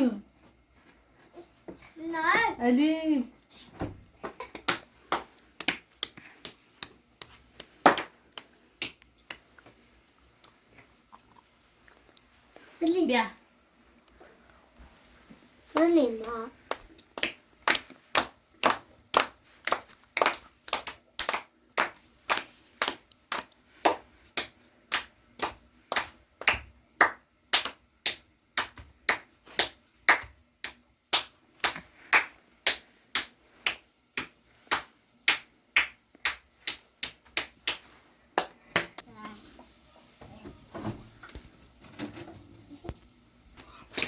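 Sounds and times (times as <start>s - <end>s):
sharp slaps or claps: 4.3s - 9.4s, 15.8s - 39.1s.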